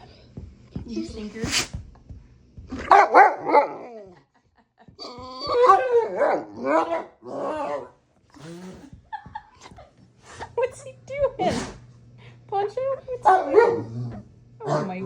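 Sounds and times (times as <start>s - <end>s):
dog barking and whining: 2.7s - 4.0s, 5.4s - 8.0s, 13.2s - 15.0s.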